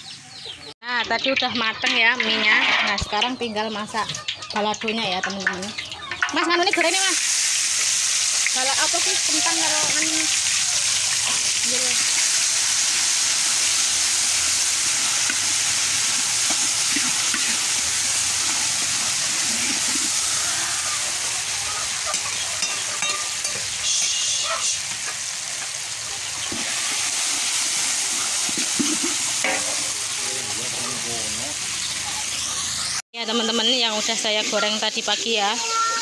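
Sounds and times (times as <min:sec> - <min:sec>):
paste sizzling in hot oil: 0:01.4 - 0:36.0
metal spoon scraping wok: 0:01.8 - 0:03.2, 0:22.0 - 0:24.2, 0:29.0 - 0:30.0.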